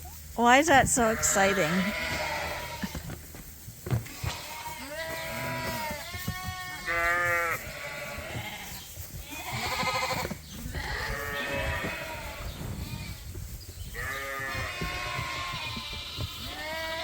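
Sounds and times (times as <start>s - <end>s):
rustling: 0.0s - 17.0s
lambs bleating: 1.0s - 3.2s, 3.9s - 13.2s, 13.9s - 17.0s.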